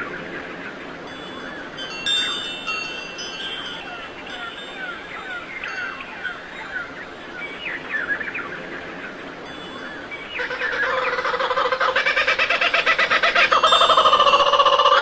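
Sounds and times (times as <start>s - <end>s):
birds chirping: 0.0s - 15.0s
pulsing bird call: 10.3s - 15.0s.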